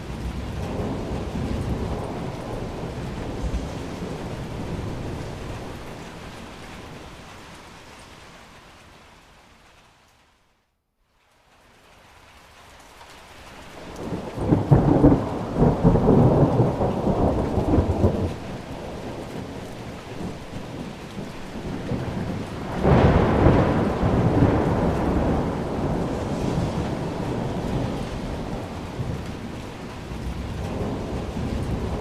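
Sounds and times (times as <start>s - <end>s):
thunder rolling: 0.0s - 7.3s, 13.8s - 32.0s
steady rain: 0.0s - 32.0s.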